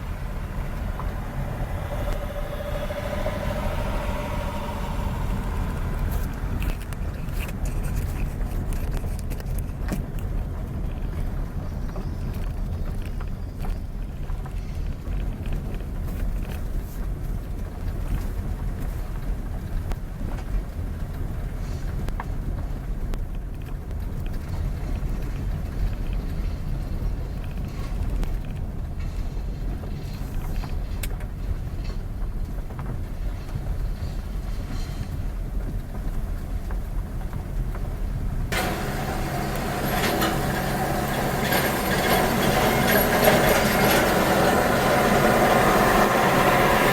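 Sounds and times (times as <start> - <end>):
loud rushing hiss: 0.0 - 7.2, 38.5 - 46.9
vehicle engine and tyres rumbling: 0.0 - 46.9.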